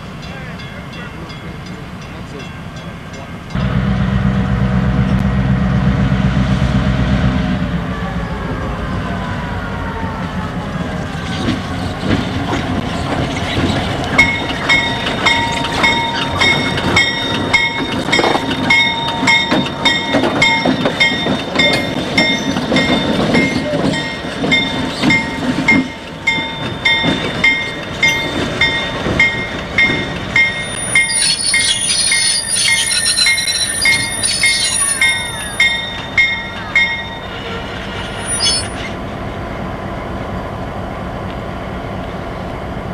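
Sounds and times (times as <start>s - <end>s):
train cars rumbling: 0.0s - 42.9s
wheels squealing: 11.0s - 39.0s
wheels clicking on rails: 11.1s - 37.2s
bell ringing: 14.2s - 37.4s, 38.1s - 38.8s.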